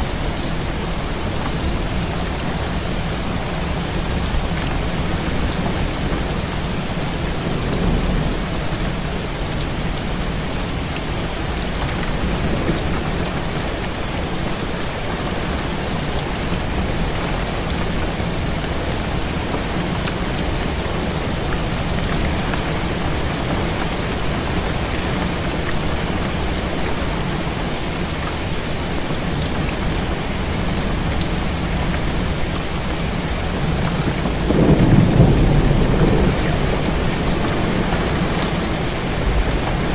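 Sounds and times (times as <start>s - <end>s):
heavy rain against window: 0.0s - 39.9s
wind: 0.0s - 39.9s
thunder rumbling: 33.5s - 39.9s.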